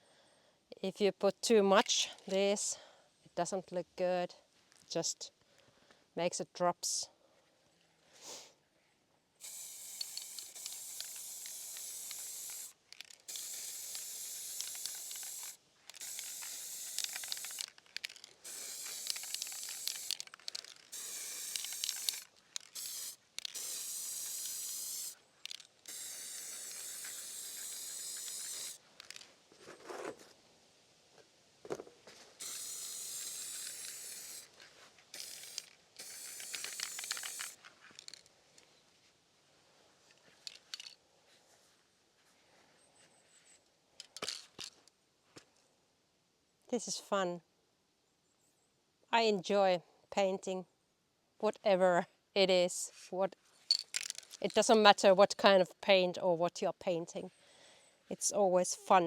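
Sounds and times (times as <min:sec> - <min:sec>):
spray paint can hissing: 0:09.4 - 0:29.2, 0:32.4 - 0:34.5, 0:35.1 - 0:38.2.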